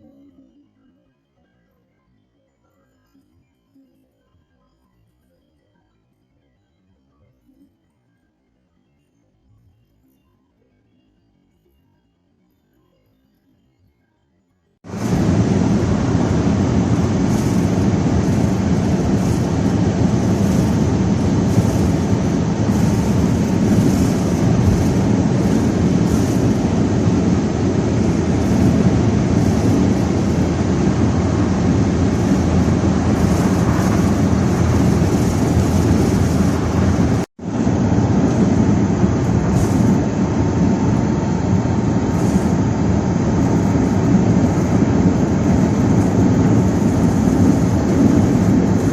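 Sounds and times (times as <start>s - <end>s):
moving vehicle noise: 14.9s - 48.9s
wind blowing over microphone: 14.9s - 48.9s.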